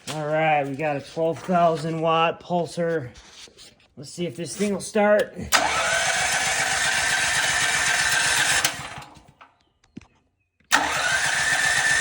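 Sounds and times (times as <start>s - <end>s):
electric starter cranking engine: 5.5s - 9.3s, 10.7s - 12.0s.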